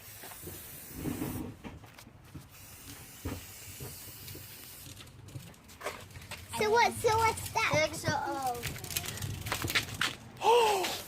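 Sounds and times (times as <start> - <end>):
spray paint can hissing: 0.0 - 1.6, 2.4 - 5.4.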